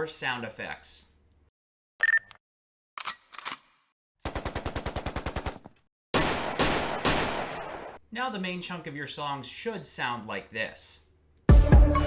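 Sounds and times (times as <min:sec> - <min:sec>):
machine-gun burst: 0:04.3 - 0:07.9.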